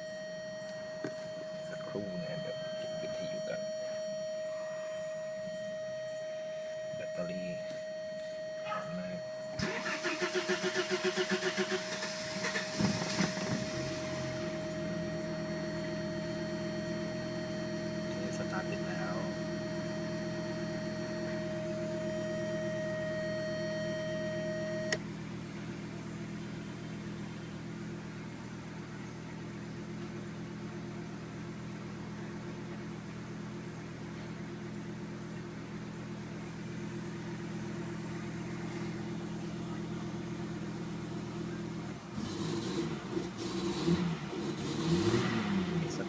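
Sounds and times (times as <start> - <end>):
steady high whine: 0.0 - 43.5
car engine idling: 0.0 - 46.0.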